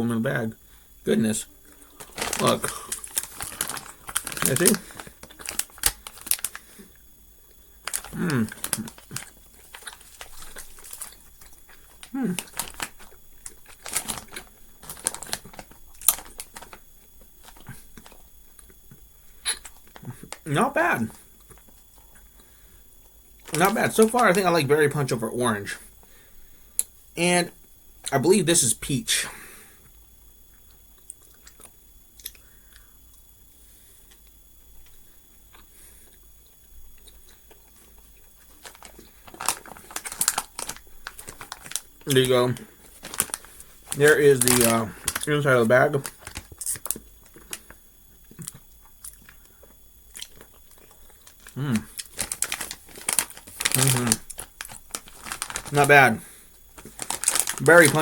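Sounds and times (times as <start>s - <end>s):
chewing gummy candy: 1.6s - 20.5s, 21.1s - 24.4s, 29.8s - 33.2s, 34.0s - 58.0s
plastic bag crinkling: 1.7s - 7.0s, 7.7s - 18.2s, 23.4s - 25.1s, 37.1s - 58.0s.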